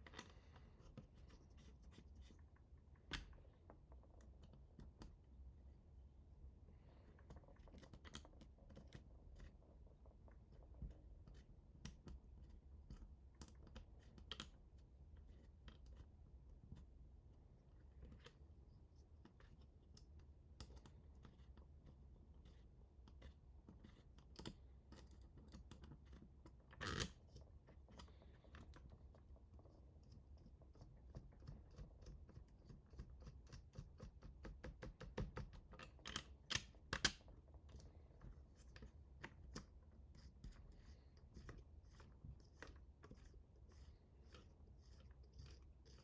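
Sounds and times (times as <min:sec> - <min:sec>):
small parts clicking and tapping: 0:29.6 - 0:46.0.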